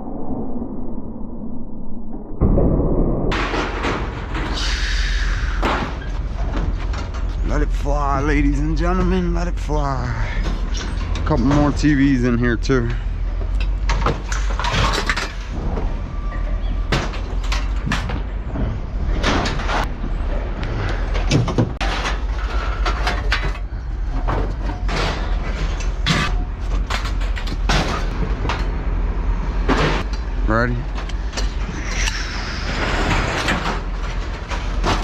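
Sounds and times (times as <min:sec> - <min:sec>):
steady low rumble: 0:00.0 - 0:21.8.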